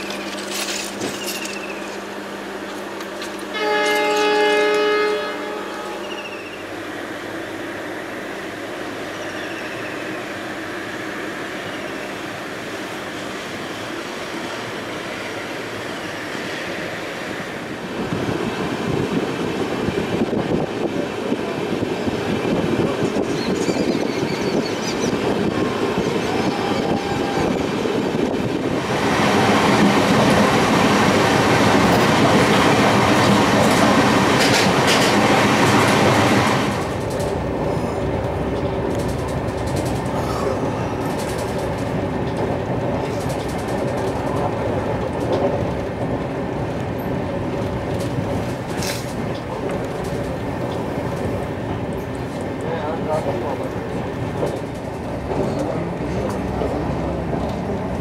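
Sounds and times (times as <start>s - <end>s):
clickety-clack over rail joints: 0.0s - 4.9s, 18.0s - 58.0s
train wheels rumbling on rail: 0.0s - 58.0s.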